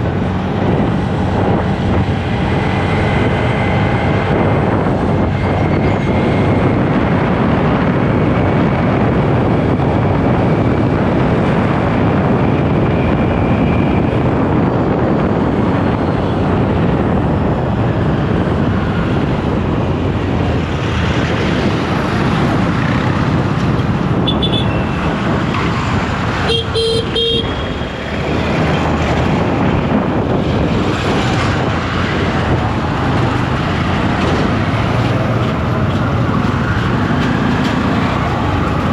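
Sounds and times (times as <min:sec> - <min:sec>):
wind and road noise: 0:00.0 - 0:38.9
vehicle horn: 0:24.2 - 0:25.0, 0:26.4 - 0:27.8.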